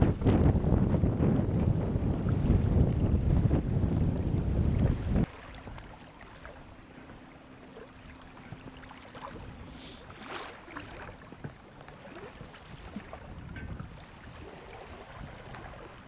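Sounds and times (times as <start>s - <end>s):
wind gust on microphone: 0.0s - 5.3s, 12.7s - 16.0s
waves lapping against boat hull: 0.0s - 16.0s.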